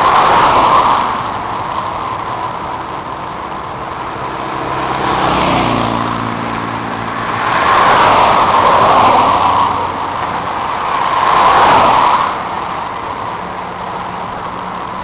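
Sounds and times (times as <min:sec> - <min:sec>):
wind rushing: 0:00.0 - 0:15.0
motorcycle engine: 0:00.8 - 0:11.2.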